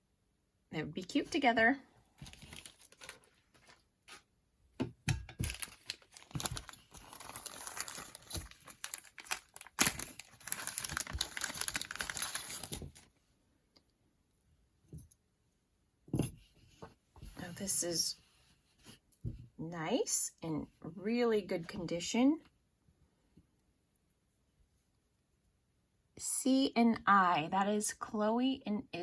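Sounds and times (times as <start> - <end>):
packaging crinkling and rustling: 2.1 - 4.3, 5.2 - 13.1.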